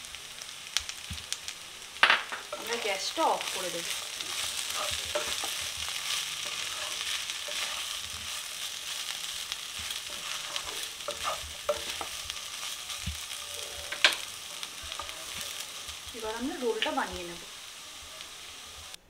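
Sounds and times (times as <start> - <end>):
food sizzling in a wok: 0.0 - 19.0
spatula scraping a pan: 2.5 - 15.8.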